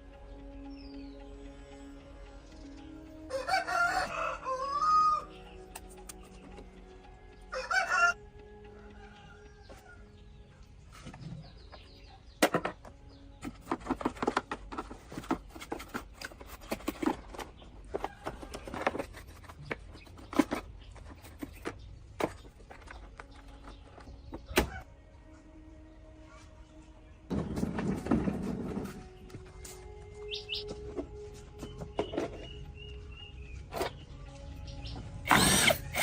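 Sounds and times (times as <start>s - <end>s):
clicks and knocks of fan parts: 12.4s - 24.6s.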